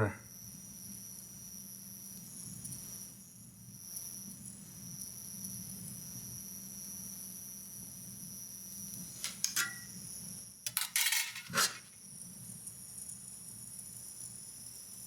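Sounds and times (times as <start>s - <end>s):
metal rod clinking on sheet steel: 9.2s - 9.9s, 10.7s - 11.9s.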